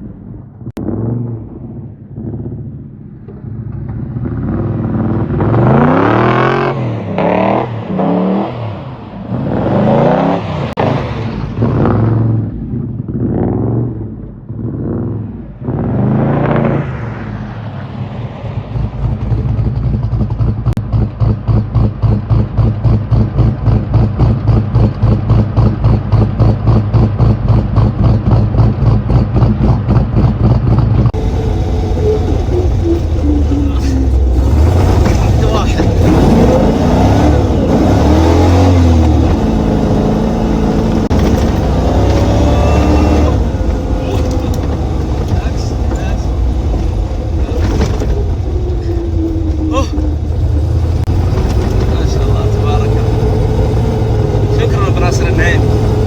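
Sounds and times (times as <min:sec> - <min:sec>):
car engine revving: 0:00.8 - 0:56.0.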